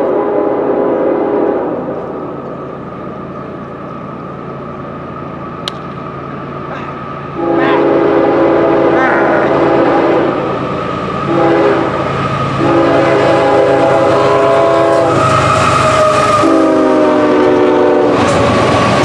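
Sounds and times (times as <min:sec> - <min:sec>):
locomotive air horn: 0:00.0 - 0:02.2, 0:07.3 - 0:10.6, 0:11.2 - 0:18.4
train rumbling: 0:00.0 - 0:19.0.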